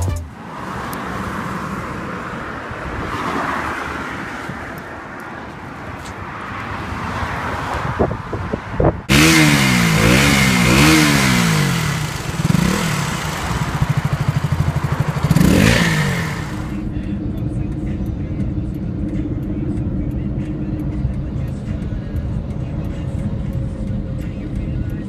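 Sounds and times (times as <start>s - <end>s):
road traffic rushing: 0.0s - 25.0s
motorcycle engine revving: 9.0s - 17.2s.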